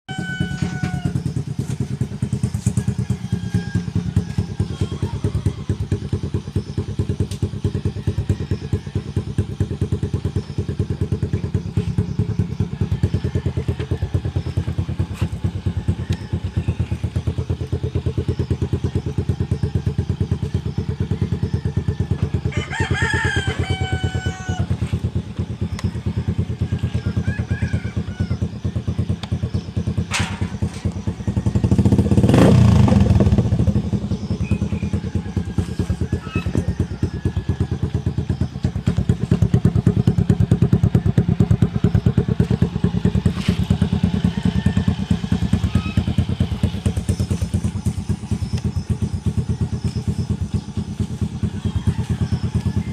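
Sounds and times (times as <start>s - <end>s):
rooster crowing: 0.1s - 1.6s, 2.2s - 6.4s, 7.7s - 9.5s, 12.6s - 14.8s, 21.0s - 29.1s, 30.3s - 38.4s, 42.1s - 49.5s, 50.3s - 52.9s
motorcycle engine idling: 0.1s - 52.9s.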